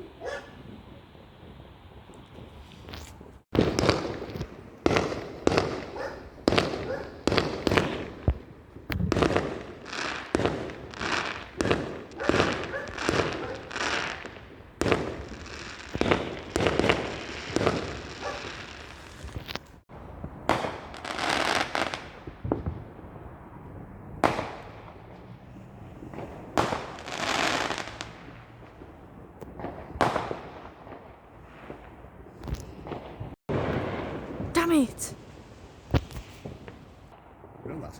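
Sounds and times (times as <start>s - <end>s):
fireworks crackling: 0.0s - 23.5s, 26.2s - 37.1s
fireworks banging: 0.0s - 25.3s.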